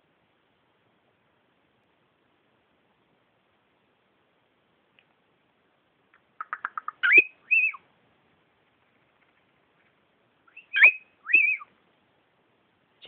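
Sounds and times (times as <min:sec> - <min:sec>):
cockatiel chirping: 0:06.4 - 0:07.8, 0:10.5 - 0:11.7
cockatiel whistling: 0:06.4 - 0:07.8, 0:10.5 - 0:11.7.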